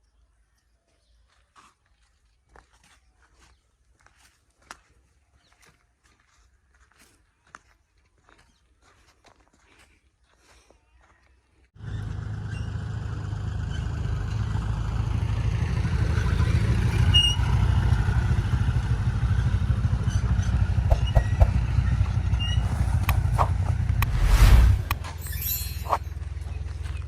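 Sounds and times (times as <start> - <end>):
diesel engine rumbling: 11.8 - 27.0.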